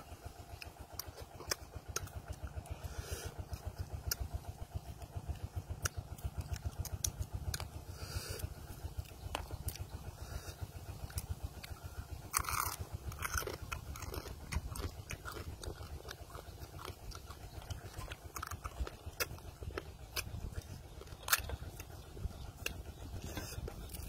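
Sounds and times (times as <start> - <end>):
low steady rumble: 0.0 - 24.0
wet chewing: 0.0 - 24.0
crab shells crunching: 11.0 - 24.0.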